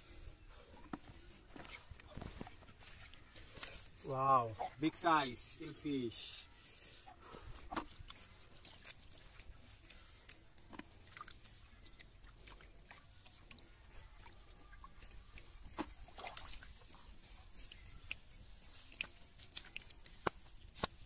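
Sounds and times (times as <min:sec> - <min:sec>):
wet clicks and splashes: 0:07.7 - 0:14.4, 0:17.7 - 0:21.0.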